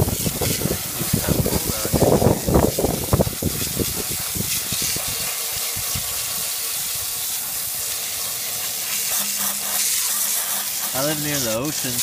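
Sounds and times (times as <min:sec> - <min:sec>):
water spray hissing on mower: 0:00.0 - 0:12.0.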